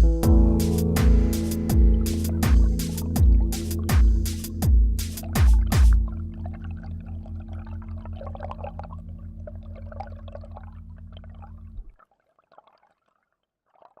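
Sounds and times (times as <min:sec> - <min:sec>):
low pulsing hum: 0:00.0 - 0:11.9
water trickling and dripping: 0:01.7 - 0:14.0.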